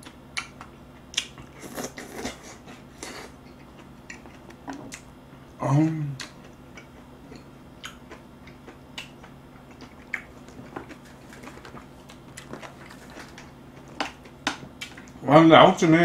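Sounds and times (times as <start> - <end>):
faint steady hum: 0.0 - 16.0
wet chewing mouth clicks: 6.2 - 15.2.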